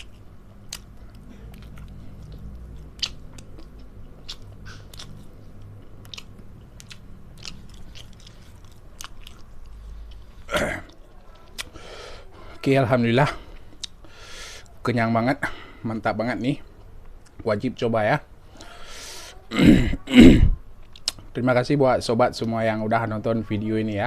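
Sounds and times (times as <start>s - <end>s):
person chewing food: 0.0s - 11.8s.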